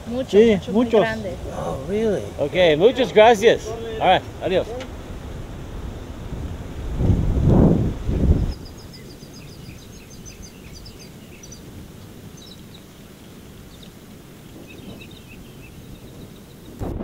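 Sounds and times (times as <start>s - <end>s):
small birds chirping: 0.0s - 7.0s, 8.0s - 16.8s
loud low rush: 0.0s - 10.2s
low outdoor hiss: 0.0s - 16.9s.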